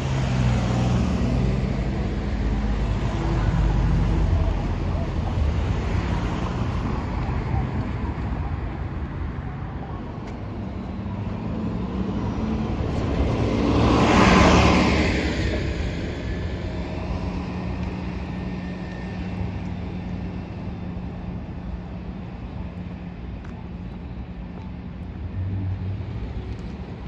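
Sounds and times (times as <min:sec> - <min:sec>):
city traffic hum: 0:00.0 - 0:27.0
vehicle passing by: 0:10.7 - 0:19.5.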